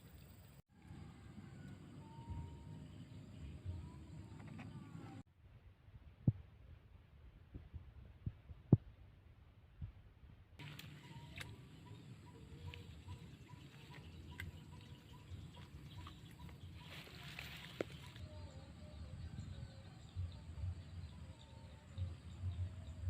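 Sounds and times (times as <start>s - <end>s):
faint bird chirps: 10.6s - 23.0s.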